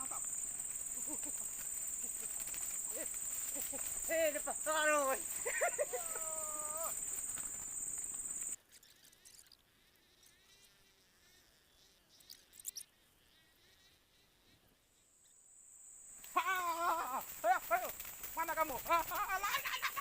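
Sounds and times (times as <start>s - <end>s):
faint rustles: 0.0s - 9.5s, 16.1s - 20.0s
high-pitched insect whine: 0.0s - 14.2s, 15.2s - 20.0s.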